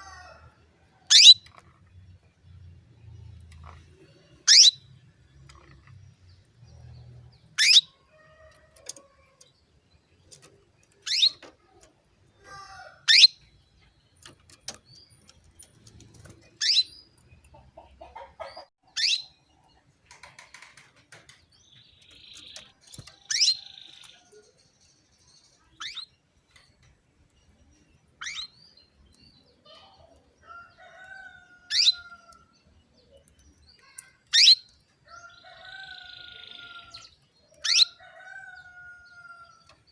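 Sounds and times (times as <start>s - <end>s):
faint canary chirps: 21.7s - 39.9s.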